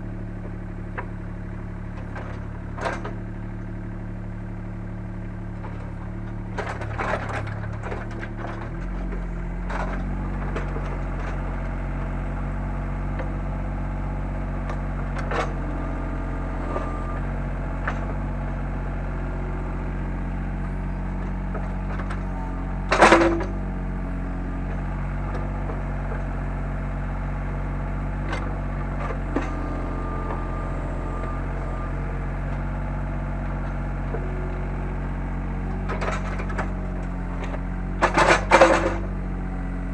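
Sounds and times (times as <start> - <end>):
excavator diesel engine running: 0.0 - 39.9
digging knocks and clanks: 2.0 - 3.2, 5.6 - 12.3, 14.6 - 18.6, 20.4 - 23.7, 24.6 - 26.5, 28.1 - 34.7, 35.6 - 39.2.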